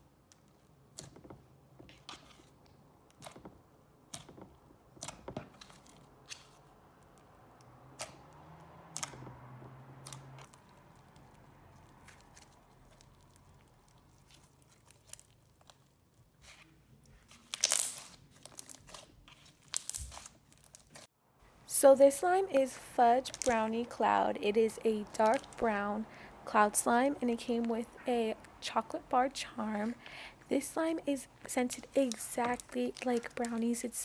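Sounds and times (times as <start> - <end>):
slime squished by hand: 10.0 - 21.0, 22.6 - 23.6.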